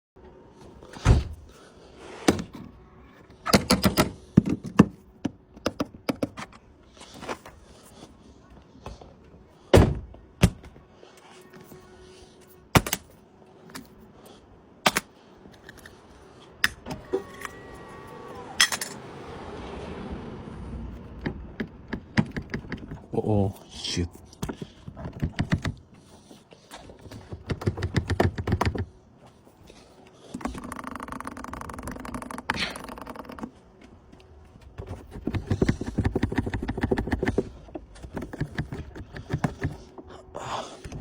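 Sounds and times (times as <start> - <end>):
short tones: 16.8 - 19.2
rising hiss: 16.9 - 20.9
sharp thunks and clicks: 21.0 - 23.1, 24.3 - 26.1, 26.7 - 28.9, 34.2 - 40.0.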